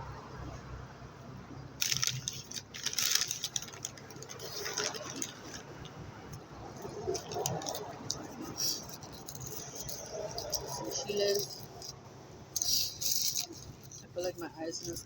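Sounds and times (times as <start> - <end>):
food packaging crinkling: 1.8 - 6.0, 6.8 - 11.9, 12.6 - 15.0.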